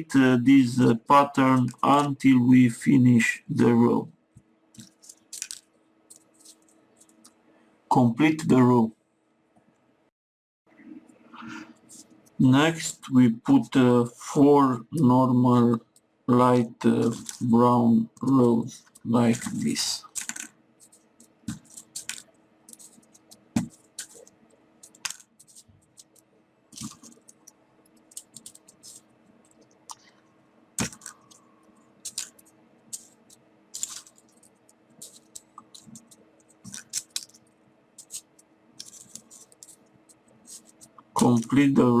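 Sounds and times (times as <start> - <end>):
paper pieces clicking and crackling: 4.8 - 7.3, 16.9 - 17.5, 18.2 - 29.7, 30.8 - 31.4, 32.0 - 41.6.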